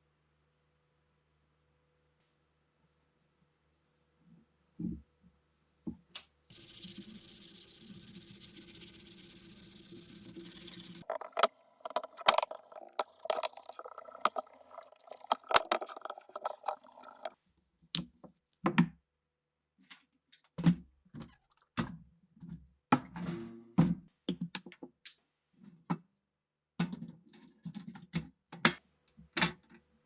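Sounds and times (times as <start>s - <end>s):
steady hiss: 6.5s - 17.3s
scraping and rubbing: 6.5s - 17.4s.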